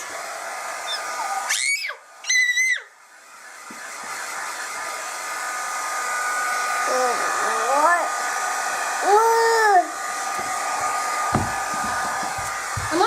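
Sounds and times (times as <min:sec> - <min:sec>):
hair dryer running: 0:00.0 - 0:13.0
child's voice: 0:06.9 - 0:08.2, 0:09.0 - 0:10.0.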